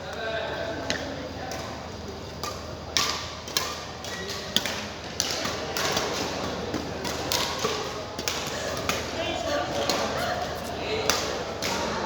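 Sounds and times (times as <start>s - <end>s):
badminton racket hitting shuttlecock: 2.4s - 12.0s.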